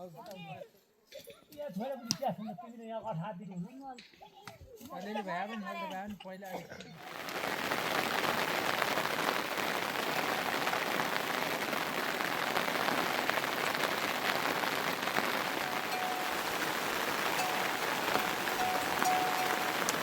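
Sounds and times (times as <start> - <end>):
heavy rain falling: 7.0 - 20.0.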